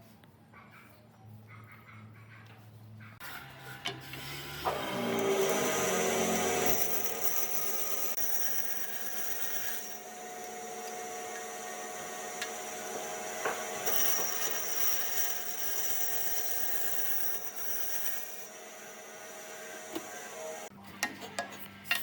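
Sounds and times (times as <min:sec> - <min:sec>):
power tool on wood: 0:03.2 - 0:20.7.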